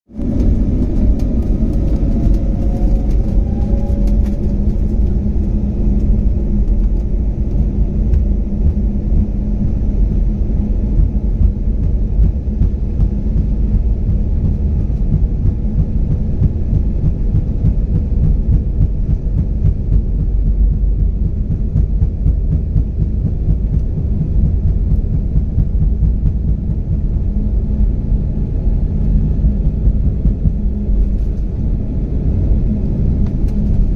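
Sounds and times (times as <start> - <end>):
jet engine whine rising: 0.1 - 15.5
jet engines rumbling: 0.1 - 33.9.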